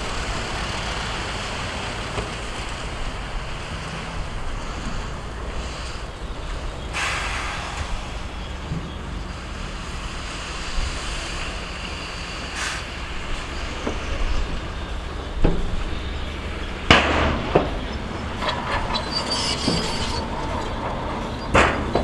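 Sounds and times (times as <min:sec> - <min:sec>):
diesel machinery engine drone: 0:00.0 - 0:22.0
sharp metallic clanks: 0:15.5 - 0:22.0.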